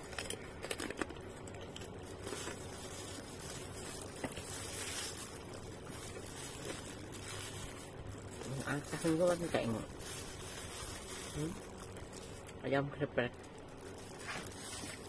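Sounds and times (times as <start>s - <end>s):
person chewing food: 0.0s - 8.6s
plastic glove rustling: 0.0s - 15.0s.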